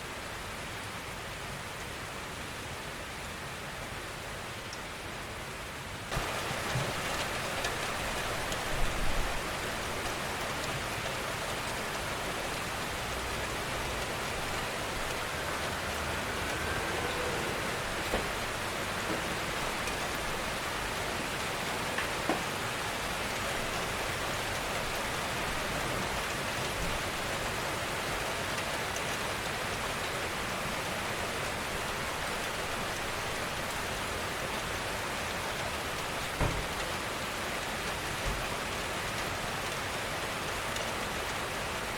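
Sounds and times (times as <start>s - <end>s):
steady rain hiss: 0.0s - 41.9s
raindrops tapping: 6.1s - 24.7s.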